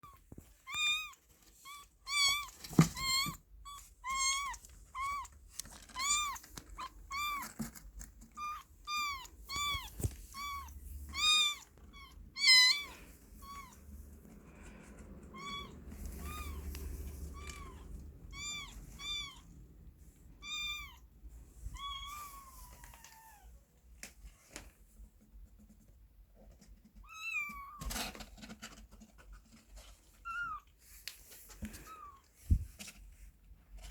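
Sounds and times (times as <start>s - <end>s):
kitten meowing: 0.0s - 7.6s, 8.3s - 13.8s, 15.3s - 19.5s, 20.4s - 21.0s.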